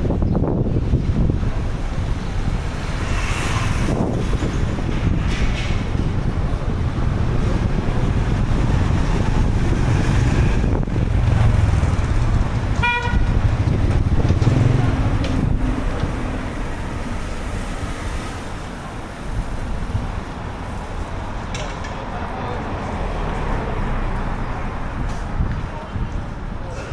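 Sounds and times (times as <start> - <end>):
street traffic: 0.0 - 26.9
wind rumbling on microphone: 0.0 - 26.9
vehicle horn toot: 12.8 - 13.4.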